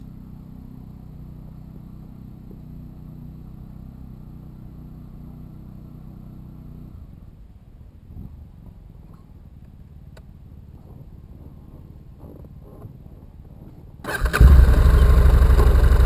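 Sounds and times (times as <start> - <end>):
motorcycle engine idling: 14.1 - 16.0.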